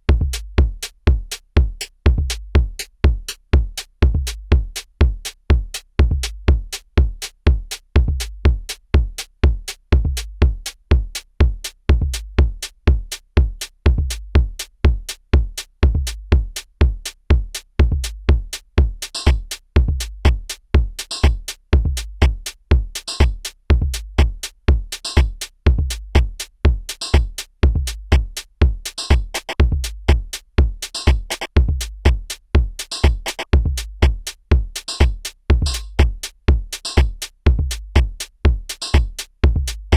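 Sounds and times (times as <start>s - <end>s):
drum machine kick: 0.0s - 39.9s
clicky drum machine hits: 29.0s - 29.6s, 31.0s - 31.5s, 32.9s - 34.2s.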